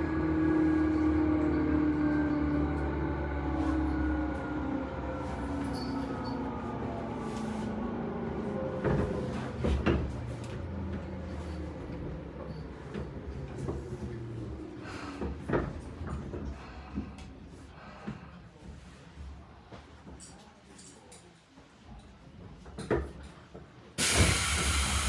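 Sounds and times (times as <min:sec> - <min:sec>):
train running rumble: 0:24.0 - 0:25.0.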